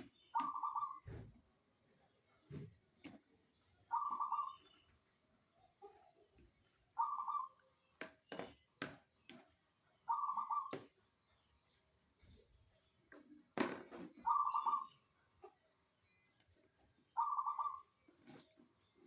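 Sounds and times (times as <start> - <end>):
dove cooing: 0.4 - 1.2, 3.9 - 4.6, 7.0 - 7.5, 10.1 - 10.8, 14.2 - 14.9, 17.2 - 18.4.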